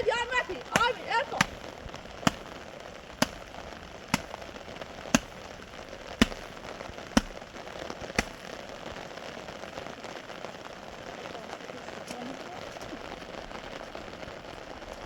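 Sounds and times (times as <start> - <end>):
sharp knocks: 0.8 - 2.6, 3.2 - 6.6, 7.2 - 7.5, 8.2 - 8.4.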